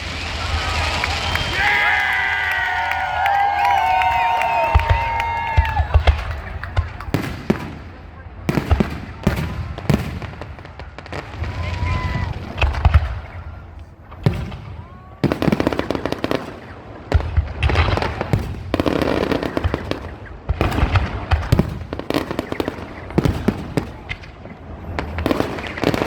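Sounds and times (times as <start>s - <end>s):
fireworks crackling pops: 0.0s - 8.0s, 8.6s - 26.0s
fireworks low booms: 0.0s - 26.0s.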